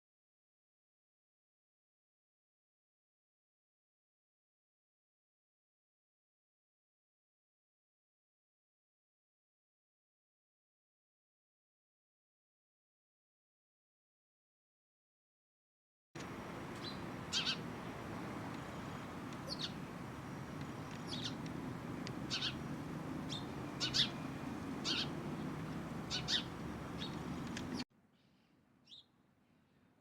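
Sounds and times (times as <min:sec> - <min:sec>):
bird chirping: 0:16.2 - 0:29.1
low background noise: 0:16.2 - 0:30.0.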